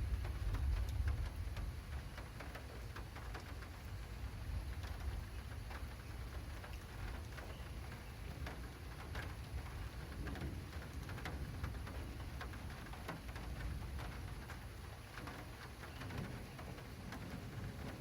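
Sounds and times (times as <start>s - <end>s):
low rain rumble: 0.0s - 18.0s
raindrops ticking on plastic canopy: 0.0s - 18.0s.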